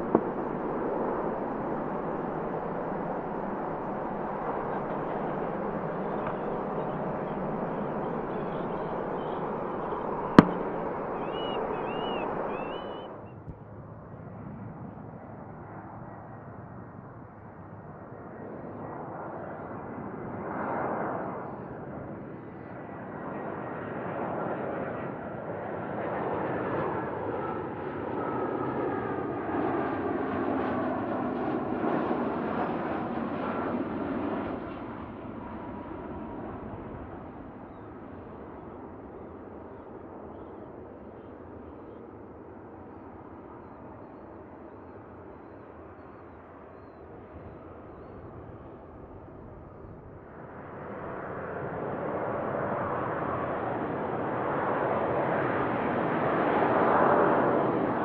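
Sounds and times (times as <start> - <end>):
faint engine whine: 0.0 - 58.0
jet airliner engines passing: 0.0 - 58.0.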